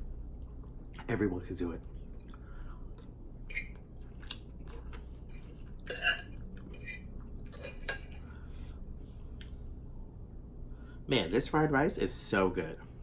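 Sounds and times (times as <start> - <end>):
cutlery clinking on a dish: 5.8 - 8.2.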